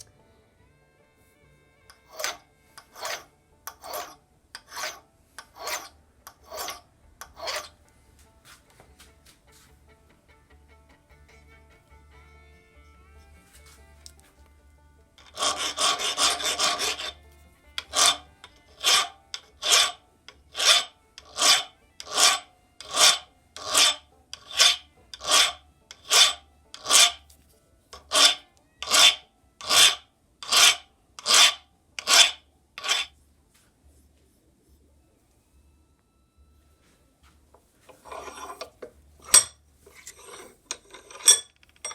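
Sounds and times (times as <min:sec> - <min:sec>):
hand file rasping on metal: 0:01.9 - 0:07.8, 0:15.2 - 0:27.3, 0:27.9 - 0:33.2, 0:37.9 - 0:41.9.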